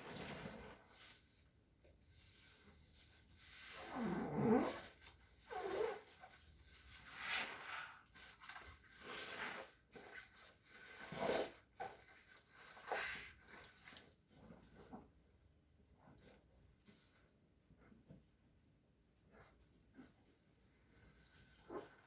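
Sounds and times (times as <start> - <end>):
rasping scrub: 2.3 - 14.8.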